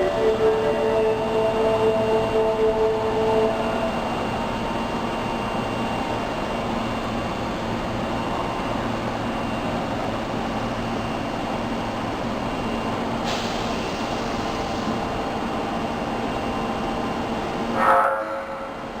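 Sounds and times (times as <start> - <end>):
subway train noise: 0.0 - 19.0
hiss: 13.2 - 15.0.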